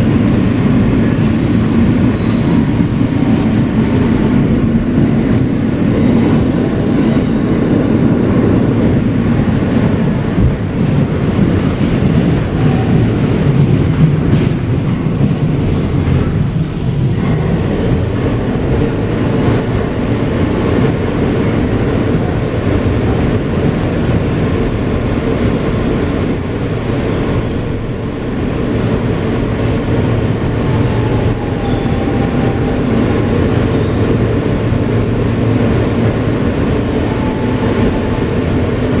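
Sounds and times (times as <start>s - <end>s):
subway wheels rumbling on rail: 0.0s - 39.0s
faint high wheel squeal: 1.2s - 2.7s, 31.6s - 32.0s.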